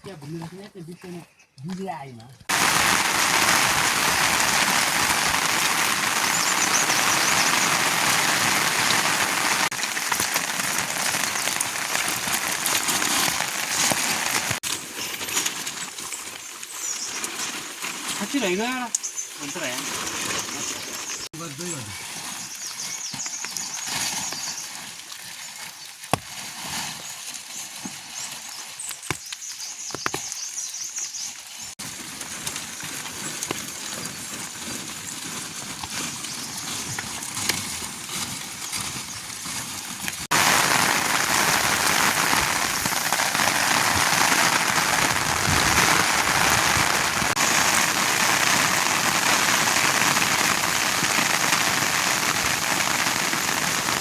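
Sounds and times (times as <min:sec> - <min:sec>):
rain falling: 0:02.5 - 0:22.0, 0:35.8 - 0:54.0.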